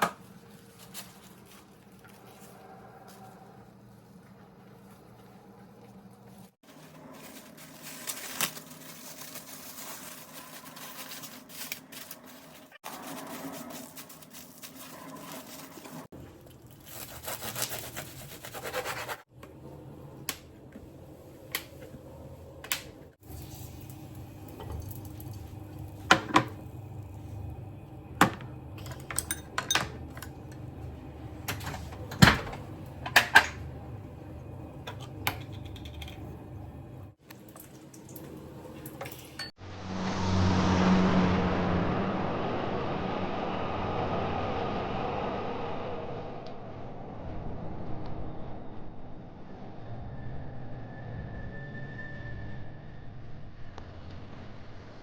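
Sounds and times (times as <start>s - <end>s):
dishes and utensils clinking: 28.8s - 30.4s.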